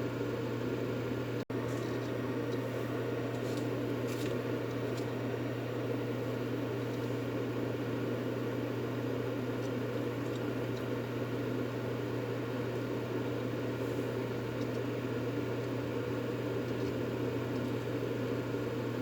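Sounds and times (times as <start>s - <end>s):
constant low hum: 0.0s - 19.0s.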